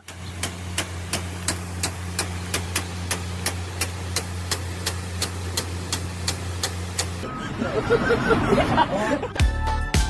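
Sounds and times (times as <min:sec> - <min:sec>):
sprinkler ticking: 0:00.0 - 0:07.2
low engine-like hum: 0:00.0 - 0:09.4.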